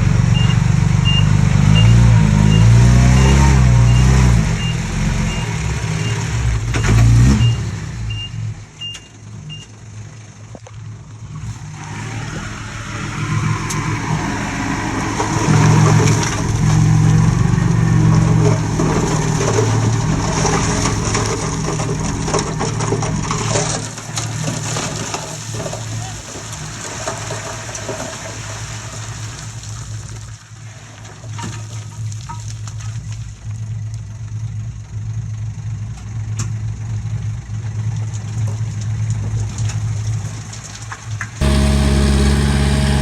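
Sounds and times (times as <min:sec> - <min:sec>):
bulldozer diesel engine working: 0:00.0 - 0:09.8, 0:11.4 - 0:29.1, 0:41.4 - 0:43.0.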